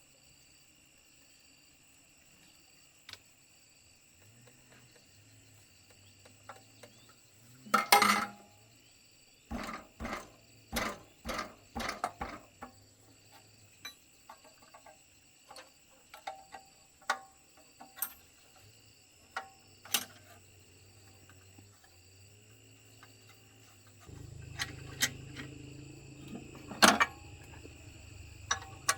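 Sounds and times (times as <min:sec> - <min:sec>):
insects chirring: 0:00.1 - 0:28.9
metal tools clattering: 0:07.8 - 0:08.5, 0:24.1 - 0:28.9
heavy metal knocks: 0:09.5 - 0:12.4.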